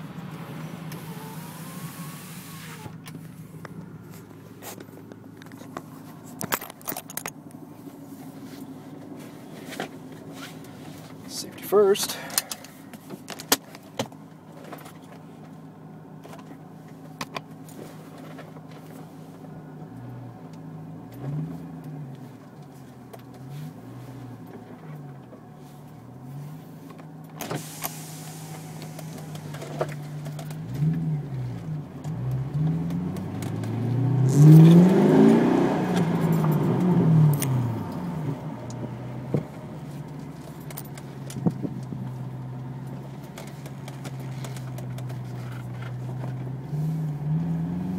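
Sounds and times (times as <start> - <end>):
car engine revving: 0.0 - 4.8, 27.6 - 47.9.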